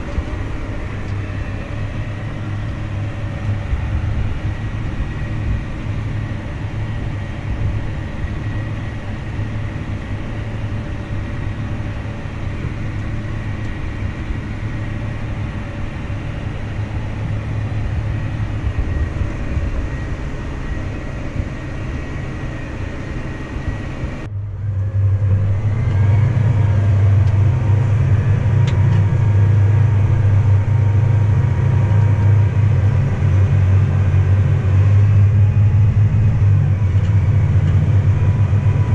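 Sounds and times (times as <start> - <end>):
farm machinery engine droning: 0.0 - 38.9.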